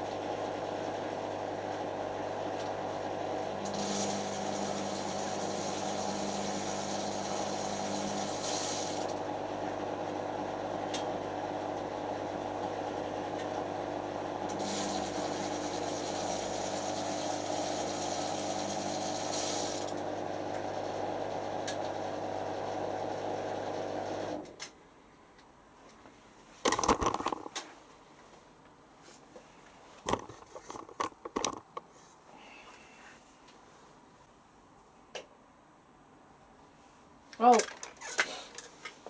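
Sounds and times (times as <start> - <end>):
washing machine motor running: 0.0 - 24.4.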